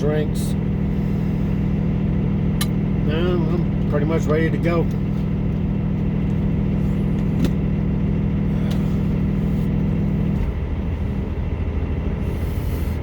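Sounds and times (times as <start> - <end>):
diesel truck engine idling: 0.0 - 13.0
steady hum: 0.0 - 13.0.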